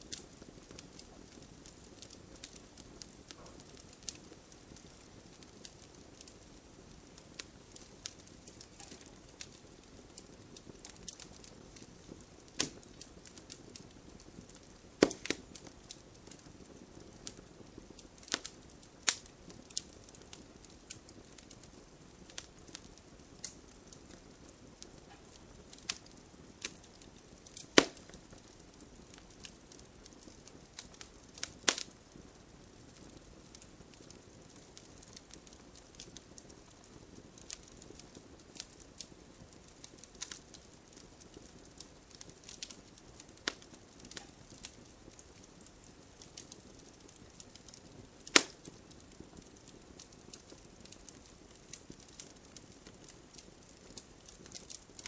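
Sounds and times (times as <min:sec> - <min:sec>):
bonfire crackling: 0:00.0 - 0:55.0.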